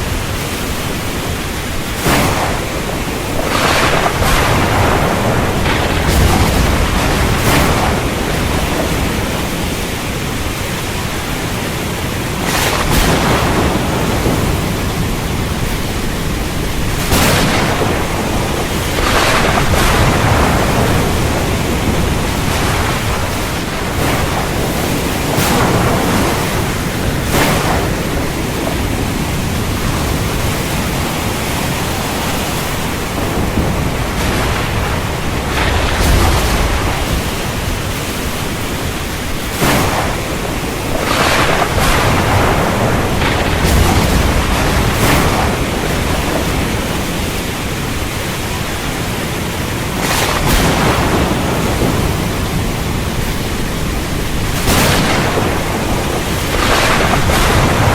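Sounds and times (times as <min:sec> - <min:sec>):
heavy rain: 0:00.0 - 0:57.9
low thunder rumble: 0:00.0 - 0:57.9
sharp cracks: 0:01.9 - 0:11.0, 0:12.3 - 0:31.0, 0:32.3 - 0:47.8, 0:54.3 - 0:57.9.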